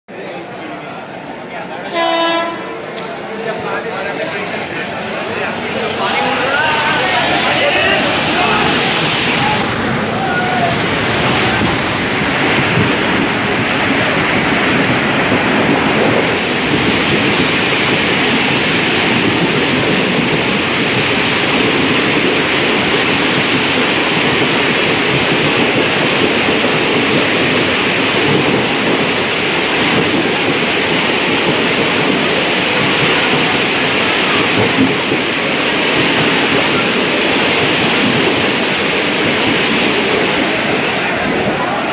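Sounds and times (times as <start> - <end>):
water rushing and splashing: 5.4 - 41.9.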